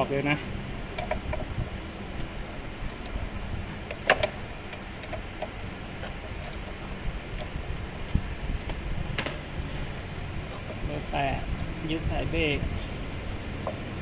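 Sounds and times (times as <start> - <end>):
steady low hum: 0.0 - 14.0
hand tools clicking on metal: 3.9 - 6.8.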